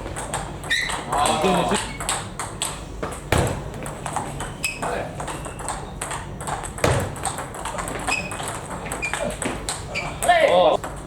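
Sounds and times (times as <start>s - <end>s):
table tennis ball clicking: 1.9s - 9.8s.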